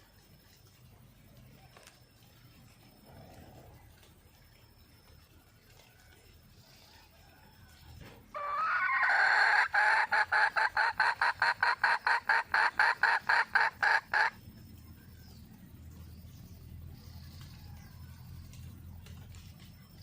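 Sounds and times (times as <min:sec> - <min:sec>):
hen calling and clucking: 0:05.1 - 0:14.6.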